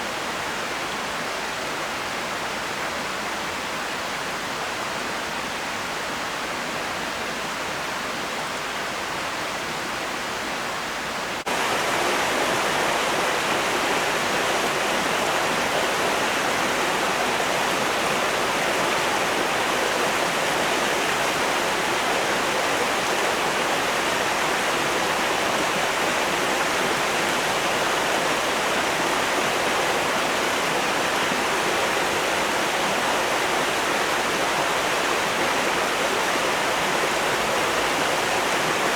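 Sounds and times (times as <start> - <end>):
flowing water rushing: 11.4 - 38.9.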